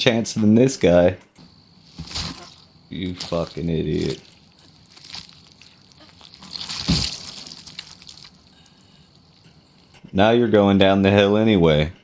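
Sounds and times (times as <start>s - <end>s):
crunching and scraping: 1.8s - 10.1s
heavy body thud: 6.6s - 7.4s.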